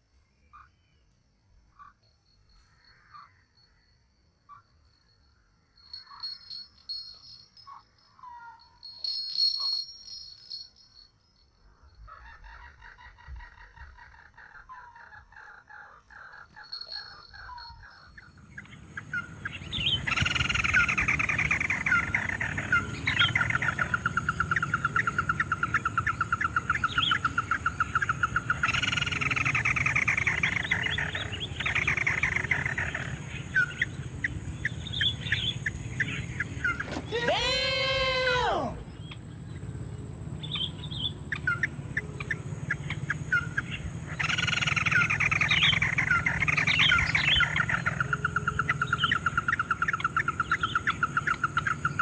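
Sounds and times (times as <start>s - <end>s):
bird rattling trills: 5.8s - 11.0s, 16.1s - 52.0s.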